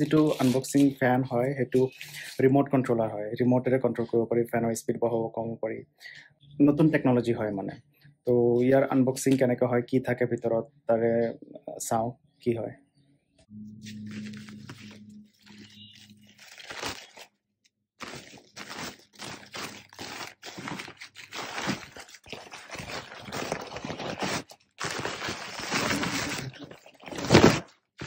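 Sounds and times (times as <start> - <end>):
cardboard packaging crunching: 13.8 - 17.4, 18.0 - 27.8
packaging rustling: 13.8 - 17.4, 18.0 - 27.7.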